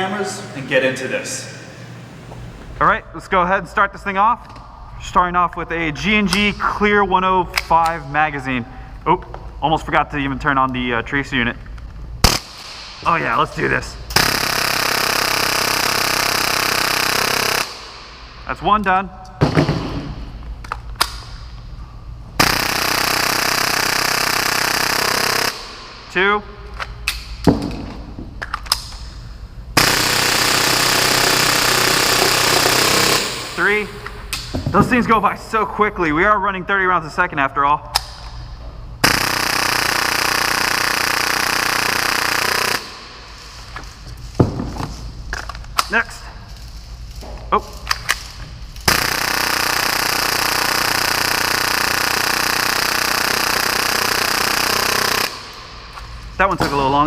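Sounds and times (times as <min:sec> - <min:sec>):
airsoft pistol full-auto burst: 0:14.2 - 0:17.9, 0:22.4 - 0:25.8, 0:29.8 - 0:34.0, 0:39.0 - 0:43.2, 0:48.8 - 0:55.7.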